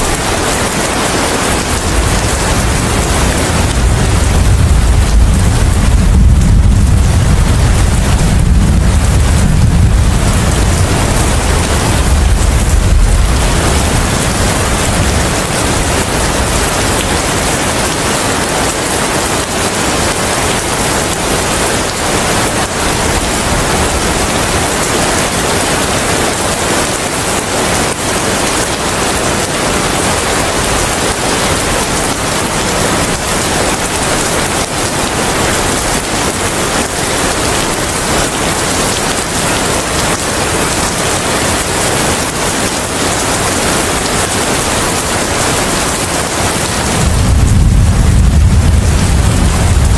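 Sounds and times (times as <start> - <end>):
heavy rain falling: 0.0 - 49.9
deep rumble: 1.8 - 16.6, 46.8 - 49.9.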